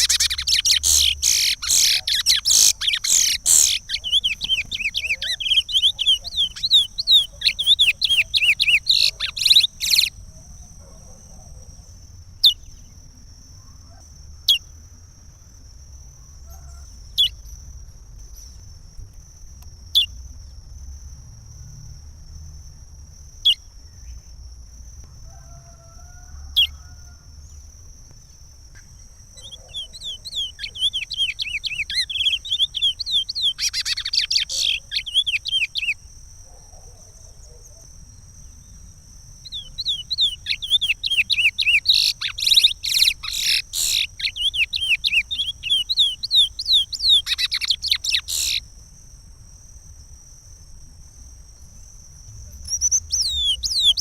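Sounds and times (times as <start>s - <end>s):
finch warbling song: 0.0s - 10.1s, 52.7s - 54.0s.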